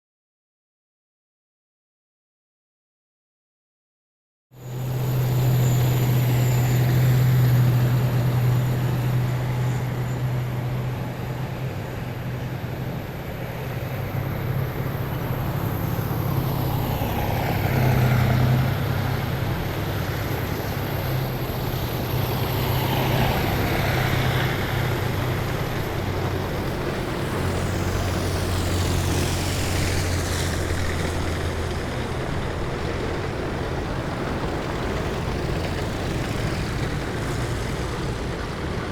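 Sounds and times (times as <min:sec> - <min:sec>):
heavy vehicles engine drone: 0:04.6 - 0:38.9
vehicle passing close by: 0:22.0 - 0:38.9.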